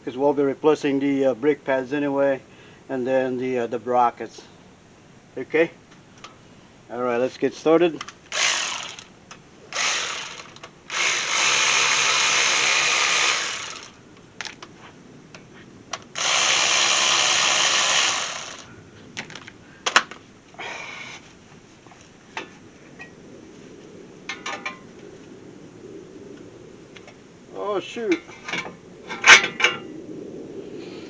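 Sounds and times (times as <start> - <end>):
power tool running: 8.3 - 9.1, 9.7 - 14.0, 16.2 - 18.7.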